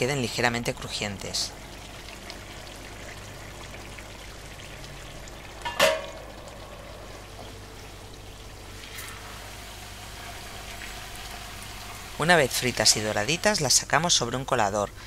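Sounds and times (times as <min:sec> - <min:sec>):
potatoes sizzling in oil: 0:00.0 - 0:14.6
metal lid clinking on pan: 0:05.6 - 0:06.3.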